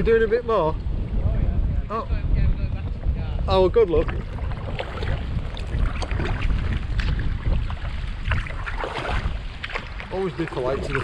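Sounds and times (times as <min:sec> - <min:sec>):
wind buffeting microphone: 0:00.0 - 0:11.0
kayak paddle splashing water: 0:03.9 - 0:11.0.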